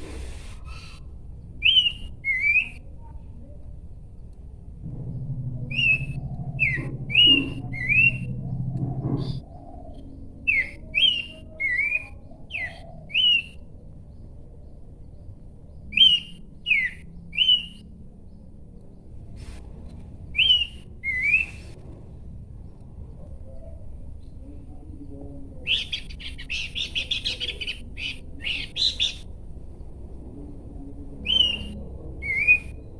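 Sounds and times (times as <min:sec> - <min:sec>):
low steady hum: 0:00.0 - 0:32.9
babbler singing whistled notes: 0:01.6 - 0:02.8, 0:10.4 - 0:13.7, 0:15.8 - 0:17.9, 0:20.4 - 0:21.6, 0:31.2 - 0:32.9.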